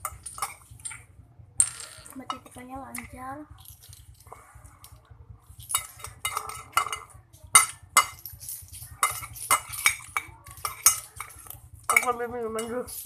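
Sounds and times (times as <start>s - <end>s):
cutlery clinking against bowl: 5.7s - 13.0s.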